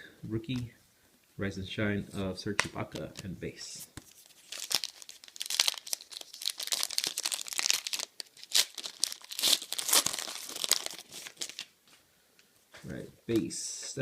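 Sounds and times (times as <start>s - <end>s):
wrapper crinkling and tearing: 4.0s - 11.7s.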